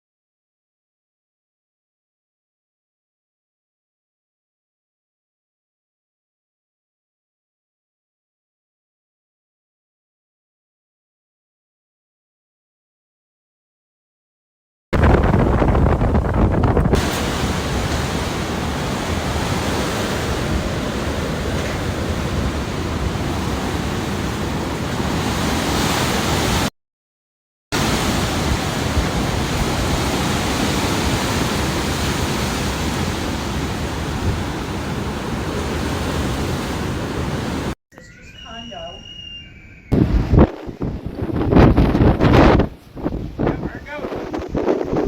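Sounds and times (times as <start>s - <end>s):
wind and rain: 15.0s - 26.7s, 27.8s - 37.8s, 39.9s - 45.0s
wind buffeting microphone: 15.0s - 26.7s, 27.8s - 45.0s.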